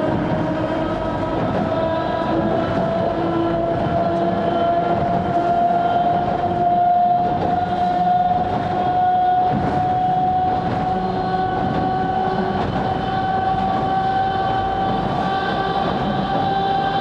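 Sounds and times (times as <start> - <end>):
electric train whine: 0.0 - 17.0
wheels rumbling: 0.0 - 17.0.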